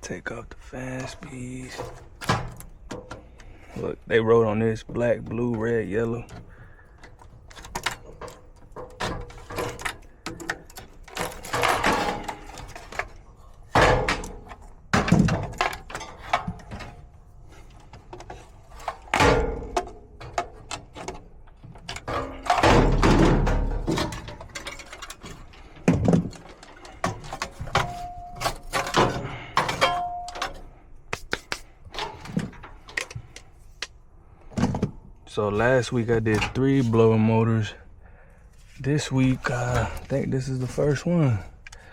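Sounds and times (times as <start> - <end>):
metal parts clattering: 6.2 - 30.7
sheet metal knocks and clanks: 13.7 - 17.0, 18.9 - 30.6.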